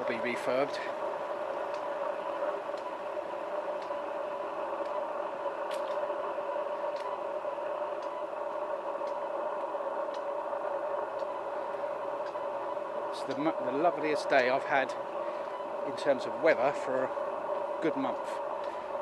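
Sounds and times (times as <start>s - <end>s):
constant hum: 0.0s - 19.0s
steady hiss: 0.0s - 19.0s.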